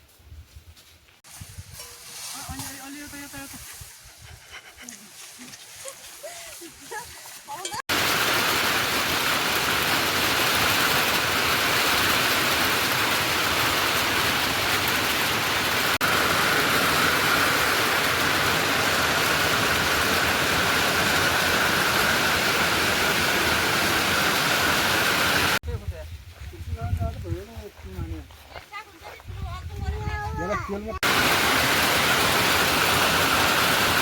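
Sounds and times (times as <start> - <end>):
heavy rain falling: 7.9 - 25.6, 31.0 - 34.0.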